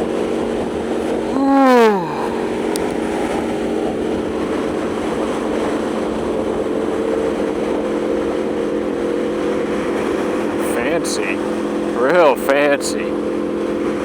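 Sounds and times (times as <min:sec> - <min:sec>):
motorcycle engine cruising: 0:00.0 - 0:14.0
road noise: 0:00.0 - 0:14.0.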